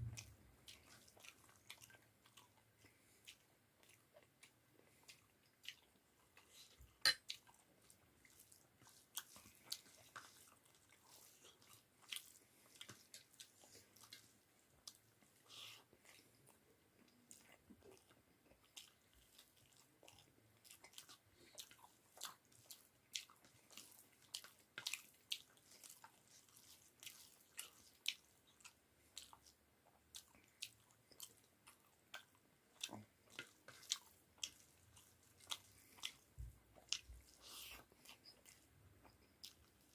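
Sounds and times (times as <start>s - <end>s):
person chewing and mouth sounds: 0.0s - 39.9s.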